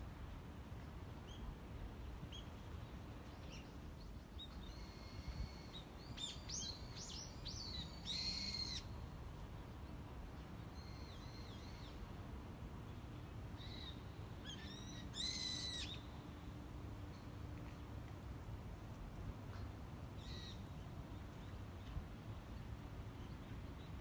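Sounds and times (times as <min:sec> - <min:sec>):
small songbirds singing: 0:03.3 - 0:08.9.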